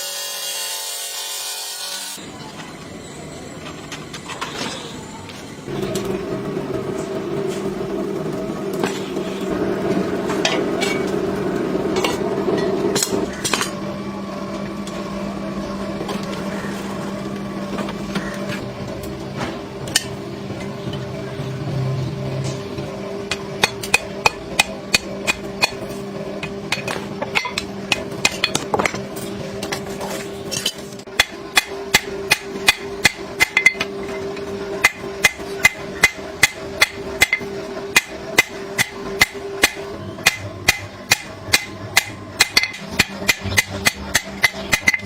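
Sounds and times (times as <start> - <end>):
steady low hum: 2.2 - 45.0
hammer striking steel: 23.3 - 26.0, 30.6 - 33.9, 34.8 - 45.0.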